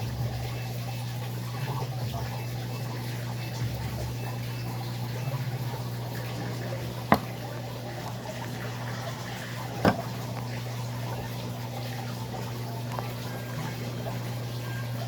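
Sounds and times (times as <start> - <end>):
washing machine motor hum: 0.0 - 15.0
water trickling and gurgling: 0.0 - 15.0.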